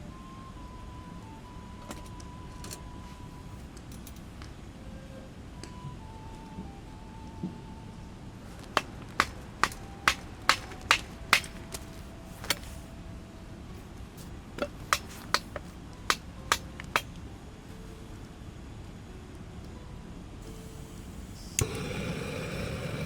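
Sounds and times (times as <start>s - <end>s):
sharp evenly paced blows: 8.6s - 12.7s, 14.7s - 17.1s.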